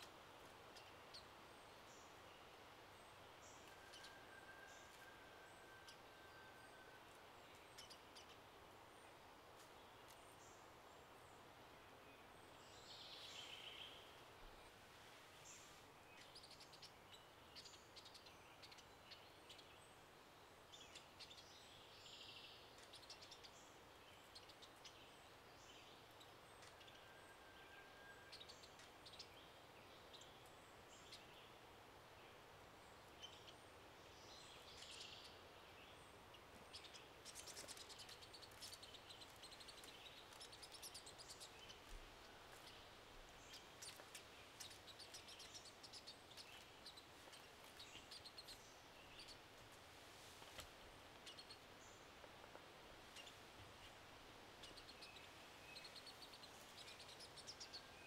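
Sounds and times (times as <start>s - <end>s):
woodland ambience: 0.0s - 58.0s.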